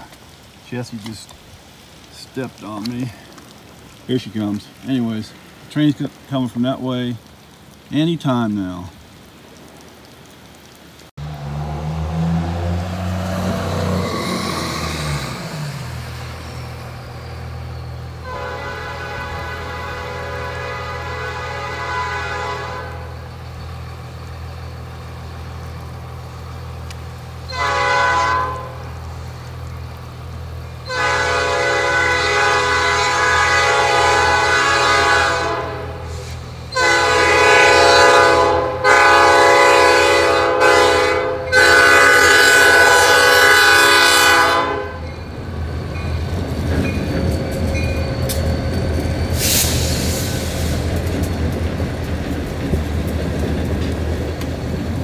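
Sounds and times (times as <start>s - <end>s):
diesel engine rumble: 11.2s - 21.0s, 22.8s - 33.6s
locomotive horn blasts: 18.2s - 23.2s, 27.5s - 28.9s, 30.8s - 45.1s
wheels on rails: 45.0s - 55.0s.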